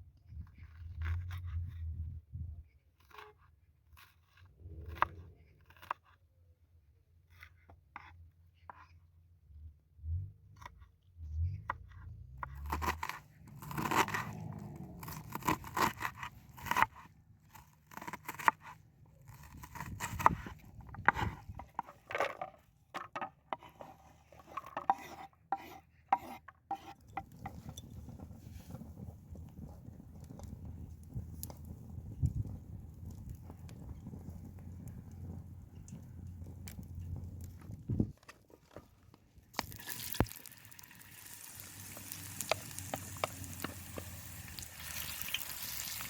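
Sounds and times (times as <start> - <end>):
knife scraping: 3.0 - 6.2, 12.0 - 28.7
vegetables crunching: 12.5 - 16.9.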